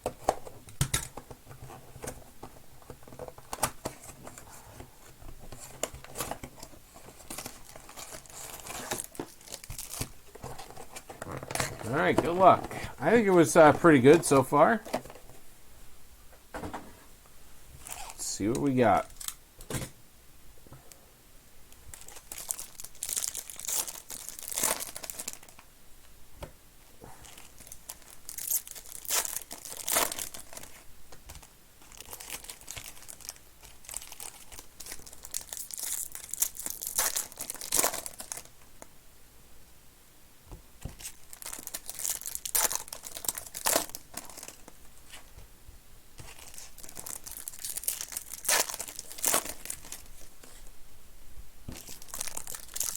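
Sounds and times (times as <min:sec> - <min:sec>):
wrappers being torn and crinkled: 0:07.2 - 0:12.5, 0:17.8 - 0:19.4, 0:21.9 - 0:25.6, 0:27.2 - 0:30.8, 0:31.4 - 0:38.5, 0:41.0 - 0:45.2, 0:46.2 - 0:50.6, 0:51.7 - 0:52.9.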